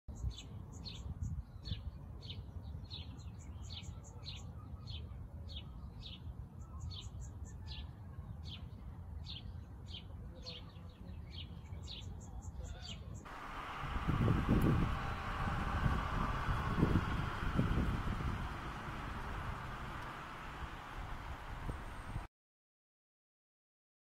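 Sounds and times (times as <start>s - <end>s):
low steady rumble: 13.3s - 22.3s.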